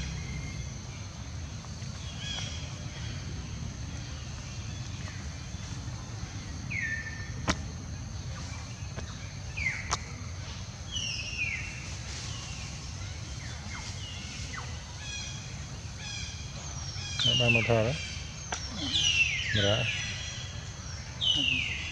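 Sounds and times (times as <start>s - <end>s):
low background rumble: 0.0s - 21.9s.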